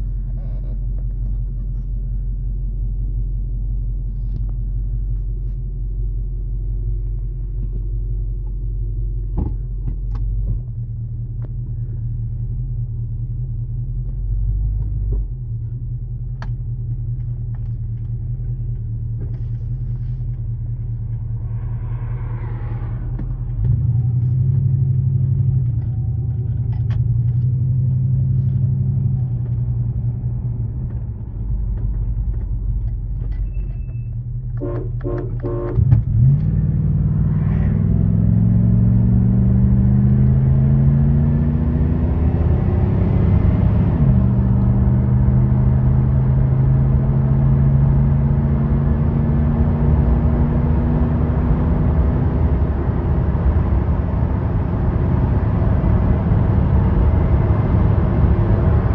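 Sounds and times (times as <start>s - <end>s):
car engine low rumble: 0.0s - 58.9s.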